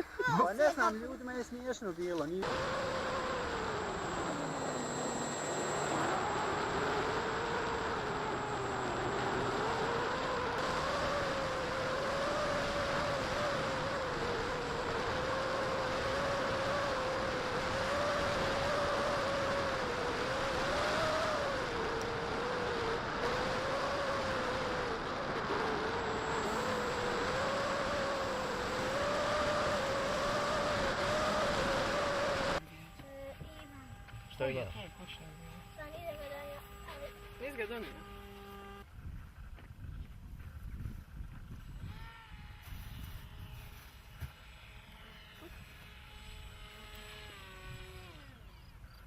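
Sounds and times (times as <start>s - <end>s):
model plane motor whine: 2.1s - 38.9s, 40.5s - 49.0s.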